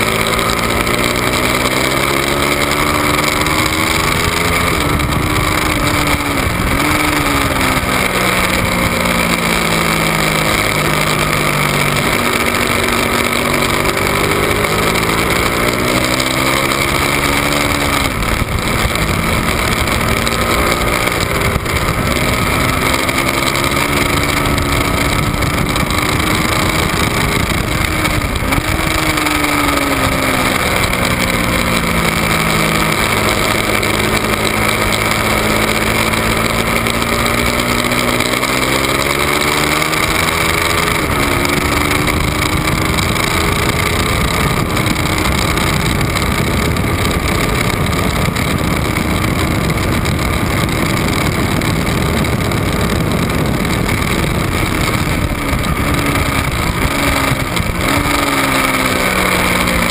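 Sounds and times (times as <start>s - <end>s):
motorcycle engine revving: 0.0s - 59.9s
wind rush over microphone: 0.0s - 59.9s.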